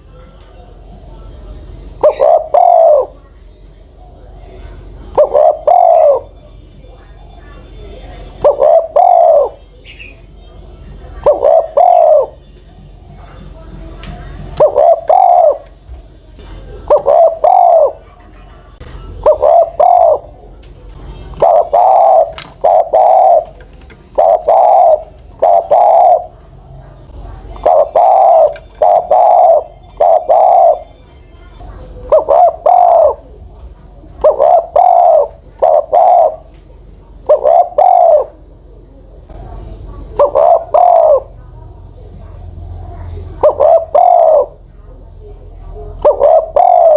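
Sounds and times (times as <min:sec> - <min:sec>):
dove cooing: 0:01.8 - 0:03.2, 0:04.0 - 0:06.4, 0:08.0 - 0:13.5, 0:14.3 - 0:15.8, 0:16.6 - 0:33.4, 0:34.0 - 0:38.4, 0:40.1 - 0:41.4, 0:42.8 - 0:44.7, 0:45.9 - 0:46.9.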